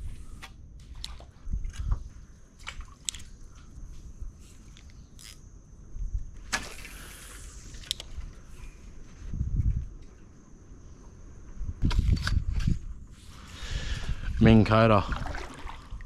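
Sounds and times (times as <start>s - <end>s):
high insect whine: 0.0s - 16.0s
rushing hiss of line: 6.7s - 7.8s.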